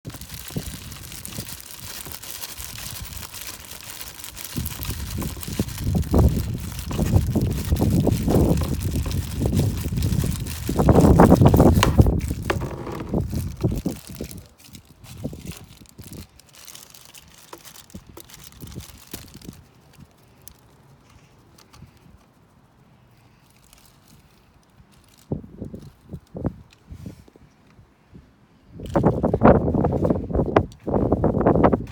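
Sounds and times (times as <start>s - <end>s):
low rumbling gusts: 0.1s - 16.5s
handling clicks and crinkling: 0.1s - 26.9s.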